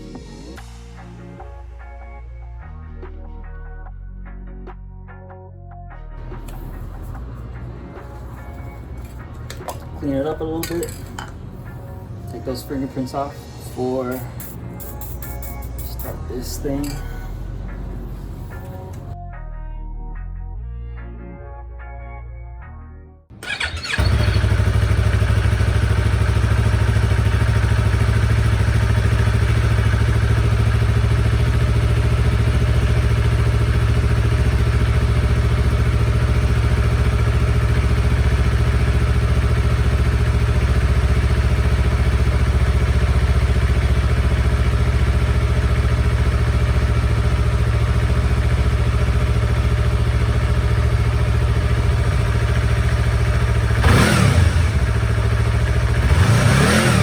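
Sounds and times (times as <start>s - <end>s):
motorcycle engine idling: 6.3s - 15.5s, 23.4s - 57.0s.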